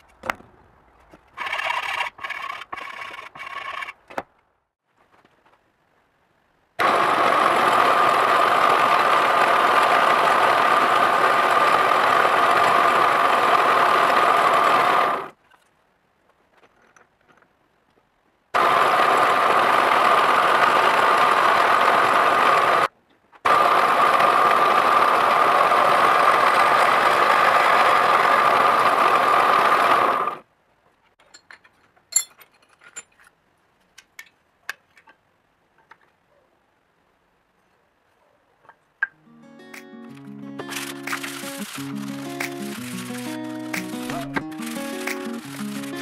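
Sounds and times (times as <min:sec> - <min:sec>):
power tool motor running: 0:06.8 - 0:15.3, 0:40.6 - 0:46.0.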